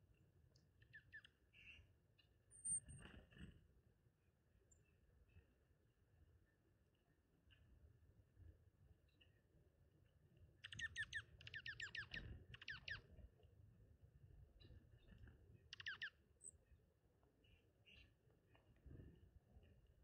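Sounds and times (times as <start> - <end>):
songbird calling: 0.8 - 1.8, 10.6 - 13.1, 15.7 - 16.6.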